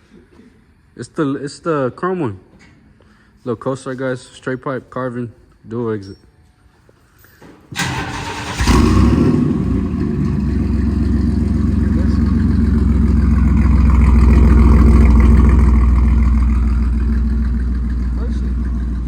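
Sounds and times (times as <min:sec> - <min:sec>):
truck engine rumbling idle: 0:07.8 - 0:19.0.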